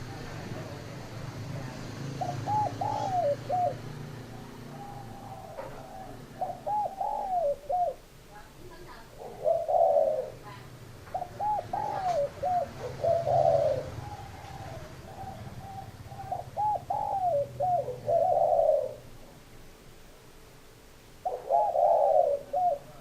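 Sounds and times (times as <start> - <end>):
dove cooing: 0.0 - 19.2, 21.2 - 23.0.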